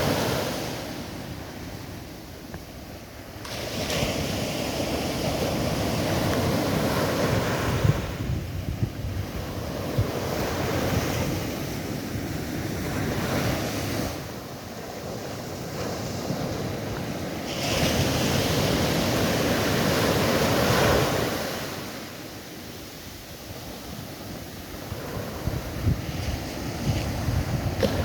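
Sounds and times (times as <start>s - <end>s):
sea waves washing in: 0.0s - 28.0s
wind rumbling on microphone: 0.0s - 28.0s.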